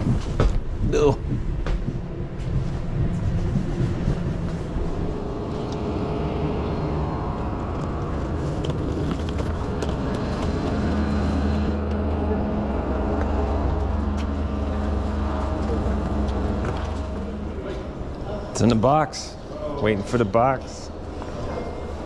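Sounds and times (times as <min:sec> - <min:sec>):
footsteps: 0:00.0 - 0:06.1, 0:07.8 - 0:18.7
rolling luggage: 0:00.0 - 0:18.7
passenger car rumble: 0:00.0 - 0:18.8.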